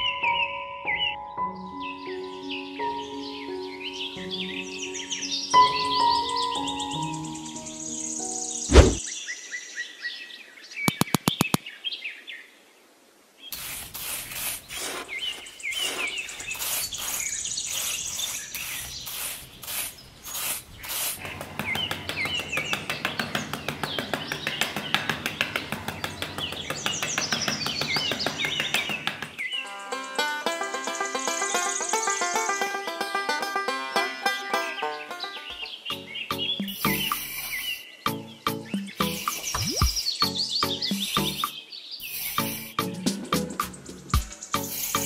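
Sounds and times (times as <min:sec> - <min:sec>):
small birds chirping: 0:00.0 - 0:12.6, 0:13.4 - 0:45.0
sharp thump: 0:08.7 - 0:09.0
quick run of clicks: 0:10.9 - 0:11.6, 0:16.6 - 0:29.4.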